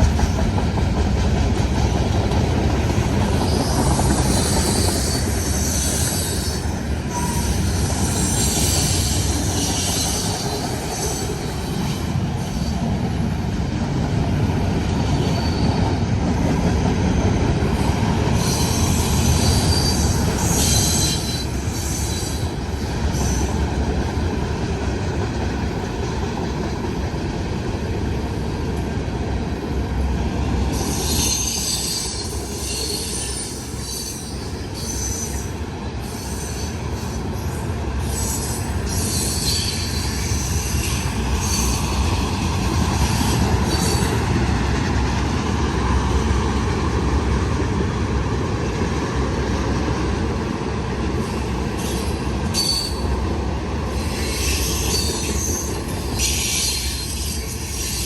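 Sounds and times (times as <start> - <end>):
freight train wheels rumbling: 0.0 - 58.0
high-pitched wheel squeal: 3.5 - 11.3, 18.4 - 22.4, 30.8 - 35.5, 51.8 - 53.0, 53.9 - 58.0.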